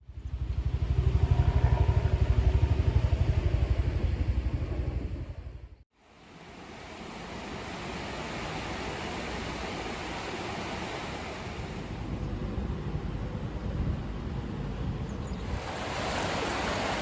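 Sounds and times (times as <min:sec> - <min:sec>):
engine running with low pulse: 0:00.0 - 0:17.0
steady rushing noise: 0:06.2 - 0:13.2, 0:15.4 - 0:17.0.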